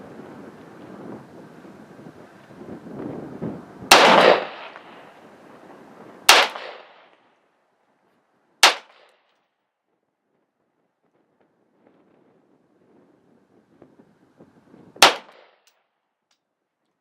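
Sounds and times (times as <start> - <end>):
wind buffeting microphone: 0.0 - 7.2, 9.9 - 15.4
gunshots: 3.9 - 5.1, 6.3 - 7.1, 8.6 - 9.1, 15.0 - 15.6.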